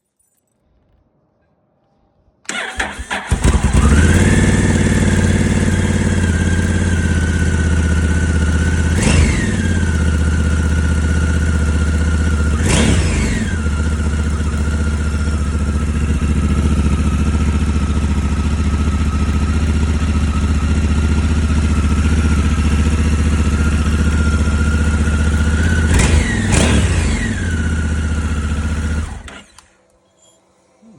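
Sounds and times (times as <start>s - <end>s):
motorcycle engine idling: 2.5s - 29.3s
engine revving: 2.5s - 29.6s.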